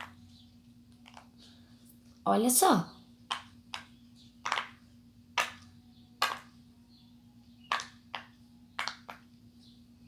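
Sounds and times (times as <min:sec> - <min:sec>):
fidget toy bubbles popping: 0:03.3 - 0:06.6, 0:07.7 - 0:09.3.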